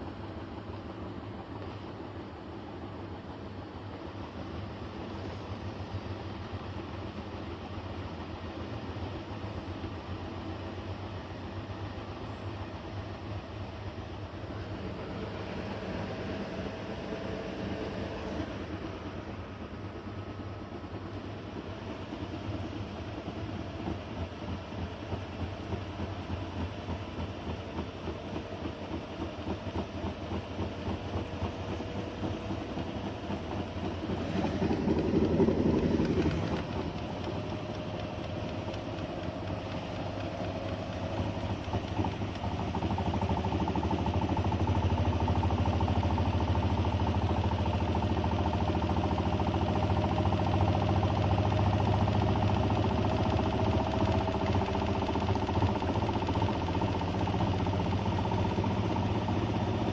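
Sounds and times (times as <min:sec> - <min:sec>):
washing machine motor hum: 0:21.4 - 0:59.9.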